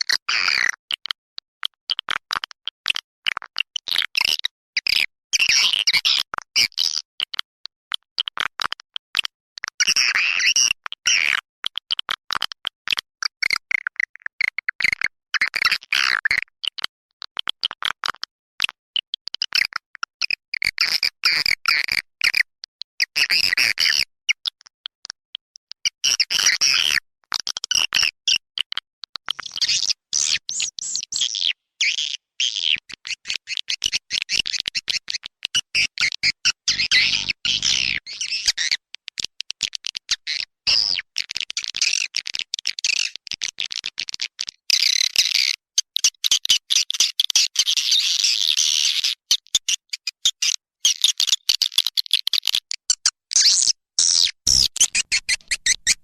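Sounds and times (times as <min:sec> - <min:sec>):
high twittering bird chirps: 0:29.6 - 0:38.6, 0:53.4 - 0:56.0.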